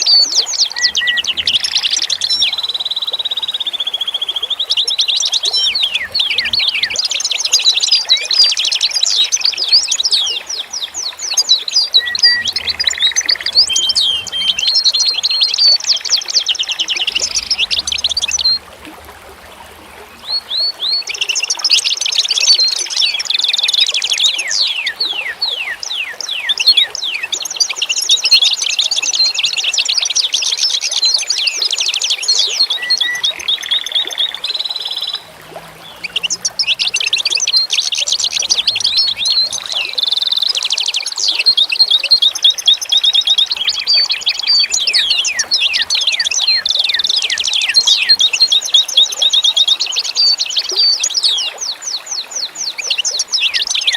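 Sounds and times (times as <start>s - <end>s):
songbirds chirping and trilling: 0.0s - 53.9s.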